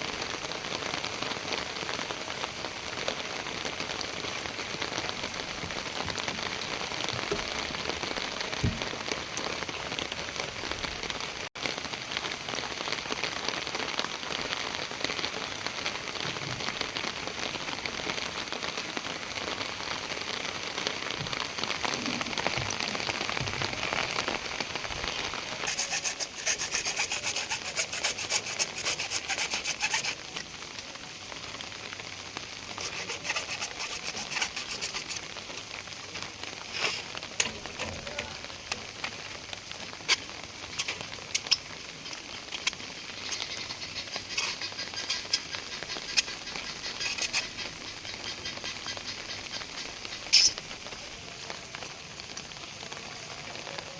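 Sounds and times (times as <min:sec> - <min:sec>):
rain hiss: 0:00.0 - 0:53.9
fast rhythmic scraping: 0:25.5 - 0:30.2, 0:32.8 - 0:35.3, 0:40.8 - 0:50.6.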